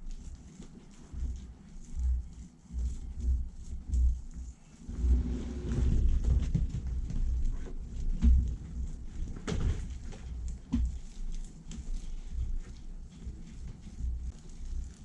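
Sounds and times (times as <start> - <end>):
soft thumps and knocks: 3.0 - 12.8.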